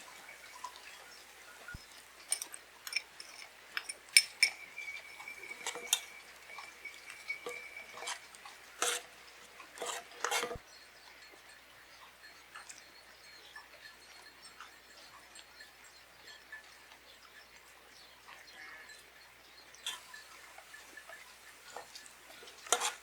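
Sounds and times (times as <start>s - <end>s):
utensils and dishes clinking: 0.0s - 11.6s, 19.8s - 23.0s.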